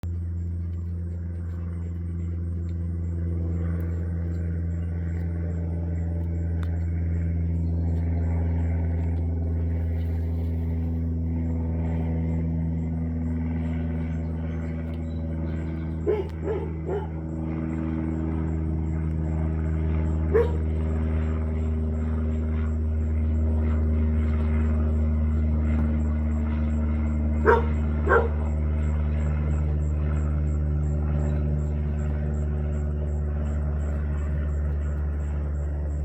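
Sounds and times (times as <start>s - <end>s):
airplane engine drone: 0.0s - 36.0s
dog barking: 16.0s - 17.2s, 20.3s - 20.6s, 27.4s - 28.4s.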